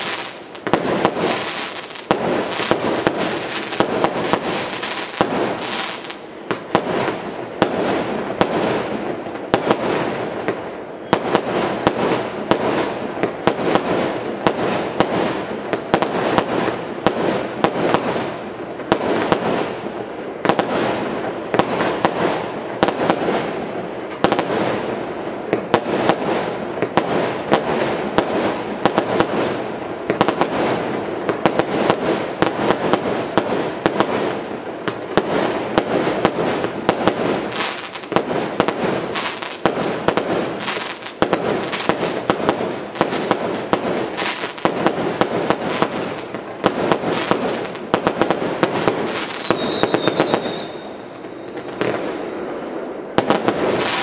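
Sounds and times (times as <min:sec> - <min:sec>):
fireworks firing and bursting: 0:00.0 - 0:54.0.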